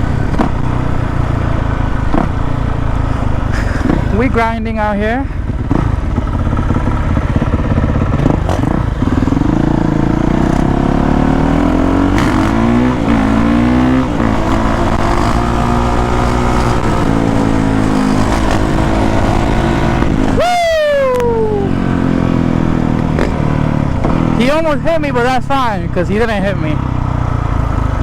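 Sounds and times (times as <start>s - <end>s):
dirt bike passing by: 0.0s - 20.4s
dirt bike engine revving: 0.0s - 28.0s.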